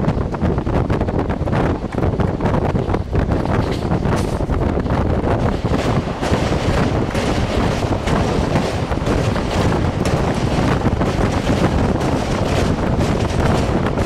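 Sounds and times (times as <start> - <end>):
low steady rumble: 0.0 - 14.0
moving train rushing: 0.0 - 14.0
wind buffeting microphone: 0.0 - 14.0.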